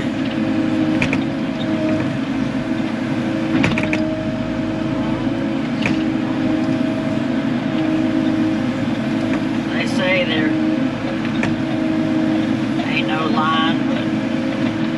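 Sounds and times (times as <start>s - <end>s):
excavator diesel engine running: 0.0s - 14.9s.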